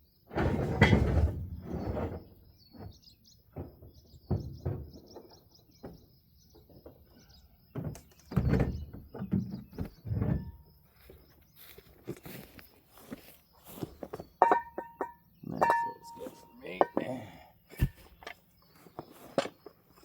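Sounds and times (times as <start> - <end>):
knocks and clunks: 0.3 - 7.0, 7.7 - 10.7, 13.9 - 17.1, 17.7 - 18.4
small birds chirping: 1.6 - 20.0.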